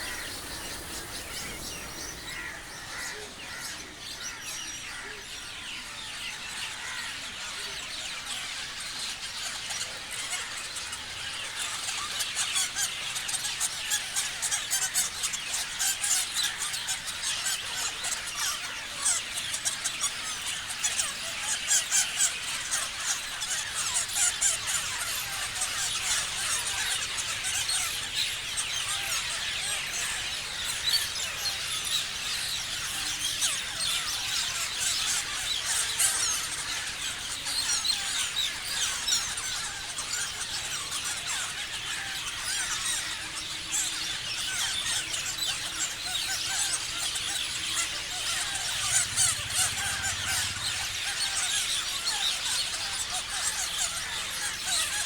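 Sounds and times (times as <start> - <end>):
parrots chattering and screeching: 0.0 - 5.2, 20.9 - 55.0.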